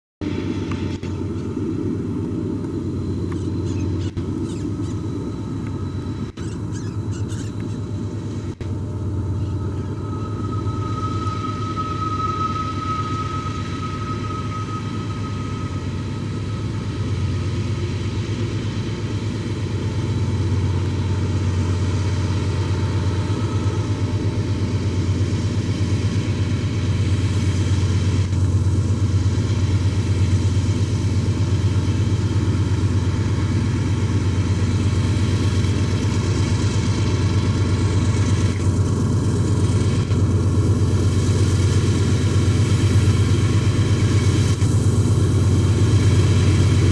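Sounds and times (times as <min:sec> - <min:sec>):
locomotive engine rumble: 0:00.2 - 0:46.9
thin high tone: 0:00.3 - 0:27.8.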